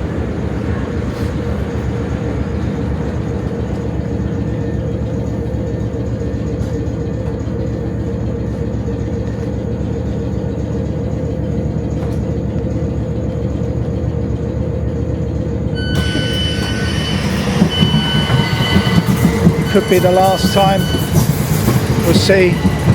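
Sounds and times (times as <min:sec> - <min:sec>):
electric train rumbling: 0:00.0 - 0:22.9
high multi-tone whine: 0:00.0 - 0:22.9.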